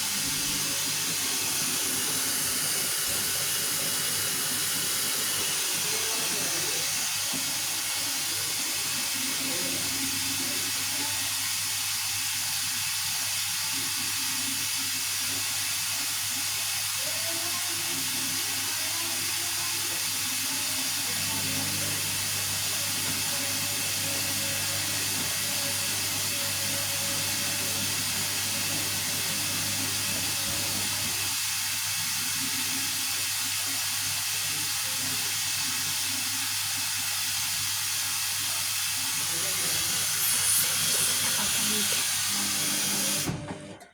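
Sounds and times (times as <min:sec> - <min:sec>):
water running into washing machine: 0:00.0 - 0:43.9
washing machine low hum: 0:20.3 - 0:31.4, 0:39.0 - 0:43.9.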